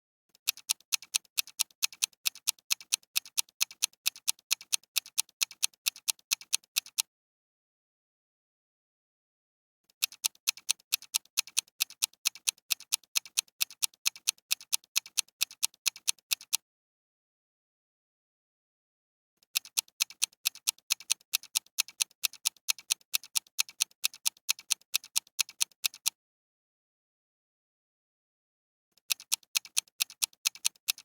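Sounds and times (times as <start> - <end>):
clock ticking: 0.5 - 7.0, 10.0 - 16.6, 19.6 - 26.1, 29.0 - 31.0.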